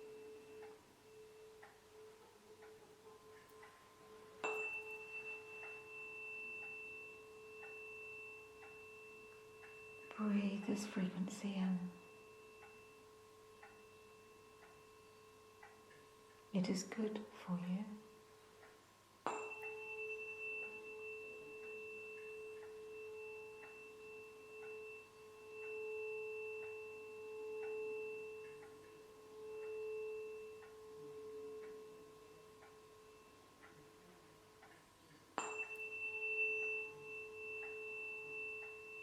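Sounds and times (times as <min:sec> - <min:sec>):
tuning fork struck and ringing: 0:00.0 - 0:39.0.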